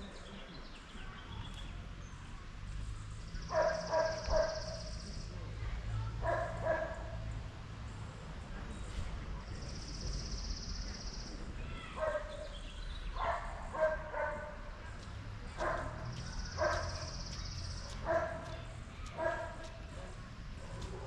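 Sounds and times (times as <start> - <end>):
dog barking and yapping: 3.5 - 4.8, 12.0 - 12.4, 13.2 - 14.6, 15.6 - 17.2, 17.9 - 18.6, 19.2 - 19.7.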